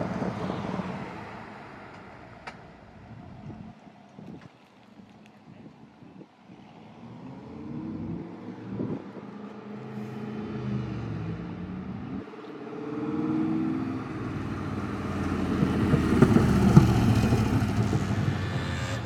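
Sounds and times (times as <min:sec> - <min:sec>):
sports car engines pulling away: 0:06.5 - 0:19.0.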